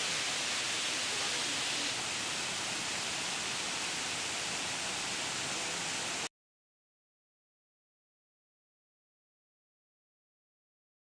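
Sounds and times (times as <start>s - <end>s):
waterfall rushing: 0.0s - 6.3s.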